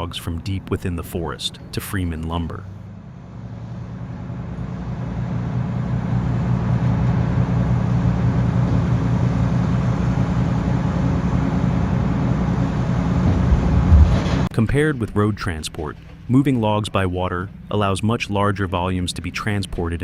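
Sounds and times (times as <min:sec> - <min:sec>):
boat diesel engine droning: 0:00.0 - 0:20.0
water noise: 0:11.4 - 0:14.5.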